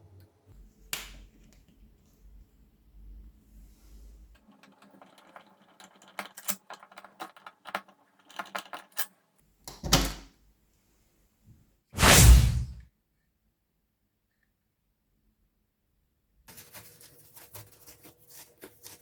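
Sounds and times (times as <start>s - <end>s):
short whoosh: 12.0s - 12.8s.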